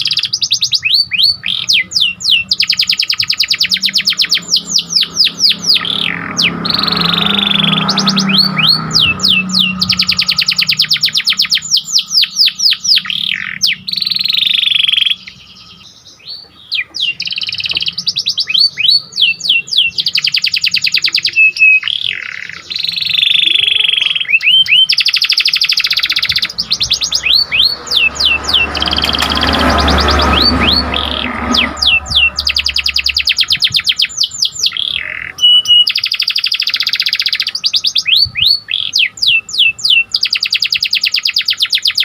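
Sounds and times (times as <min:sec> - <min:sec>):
canary singing fast trills: 0:00.0 - 0:42.0.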